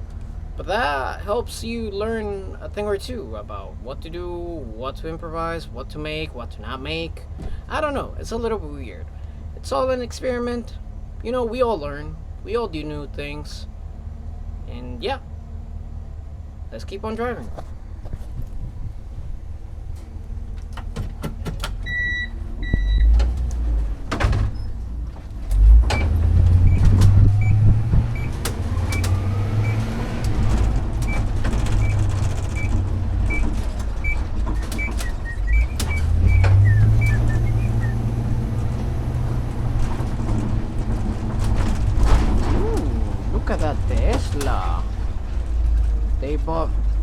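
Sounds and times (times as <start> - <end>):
truck engine and road noise: 0.0 - 47.0
turn signal ticking: 15.2 - 47.0
two-part electronic beep: 26.7 - 29.8.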